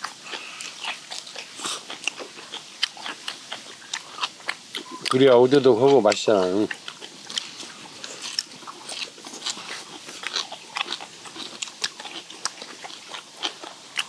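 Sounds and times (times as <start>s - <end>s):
people chewing crunchy food: 0.0s - 14.0s.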